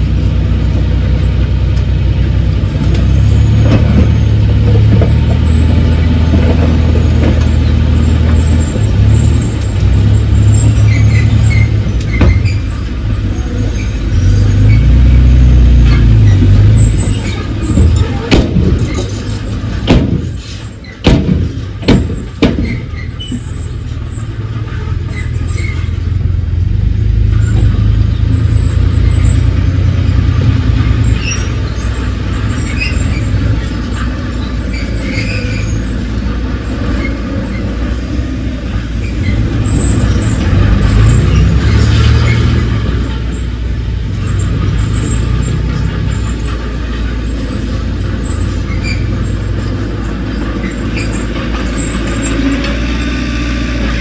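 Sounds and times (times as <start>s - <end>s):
diesel machinery running: 0.0s - 54.0s
sharp metallic knocks: 15.9s - 23.9s.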